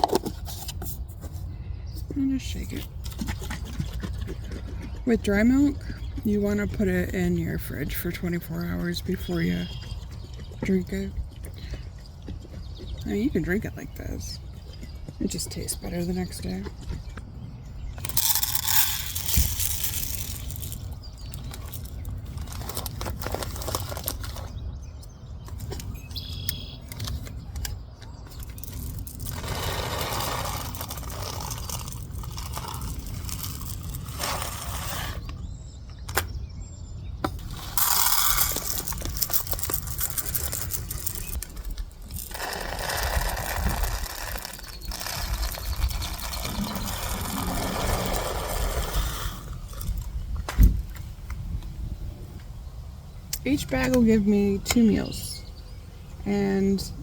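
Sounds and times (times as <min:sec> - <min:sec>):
dry rice rustling and rattling: 0:18.0 - 0:24.5, 0:28.4 - 0:35.2, 0:37.4 - 0:50.1.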